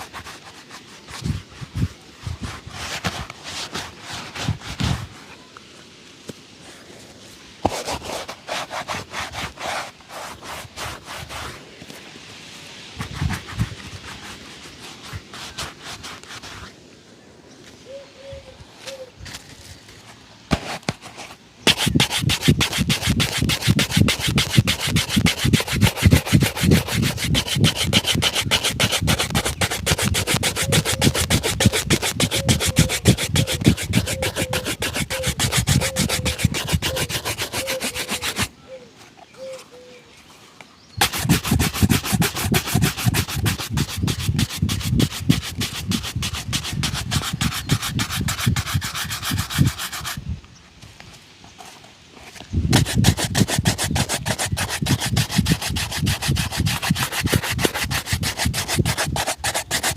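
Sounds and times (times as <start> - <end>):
shoe being buffed: 0.0 - 5.2, 7.6 - 11.6, 13.0 - 16.7, 20.5 - 38.5, 41.0 - 50.2, 52.7 - 59.9.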